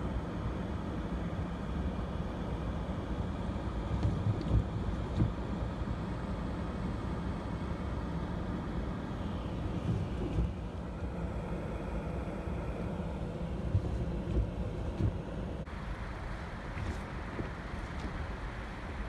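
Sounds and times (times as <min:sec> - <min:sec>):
car idling from inside: 0:13.4 - 0:19.0.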